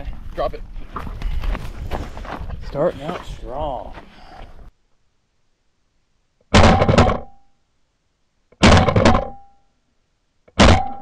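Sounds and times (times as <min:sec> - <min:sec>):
shotgun shots: 0:06.5 - 0:07.3, 0:08.6 - 0:09.4.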